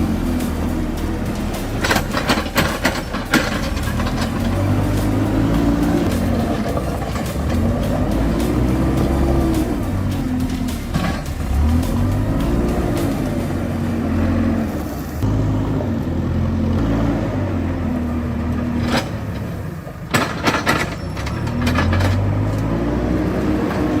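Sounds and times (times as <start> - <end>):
diesel engine revving: 0.0 - 24.0
clatter of knocks: 20.1 - 22.3.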